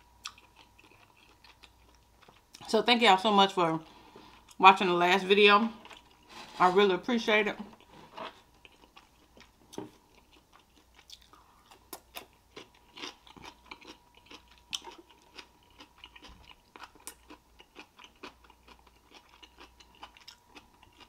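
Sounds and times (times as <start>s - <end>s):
person chewing: 0.2s - 2.7s, 5.8s - 6.3s, 7.7s - 21.0s.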